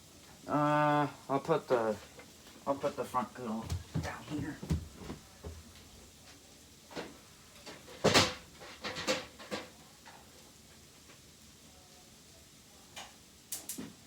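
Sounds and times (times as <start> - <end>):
plastic grill knocking and clattering: 3.6 - 5.7, 7.7 - 9.8.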